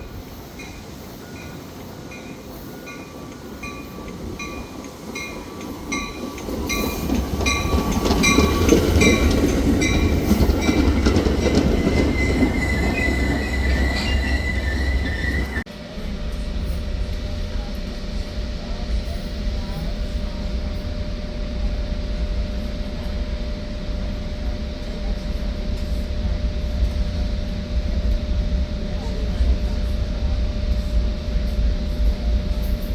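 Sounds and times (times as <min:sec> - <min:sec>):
train wheels squealing: 0:00.0 - 0:15.6
train rumbling on tracks: 0:00.0 - 0:32.9.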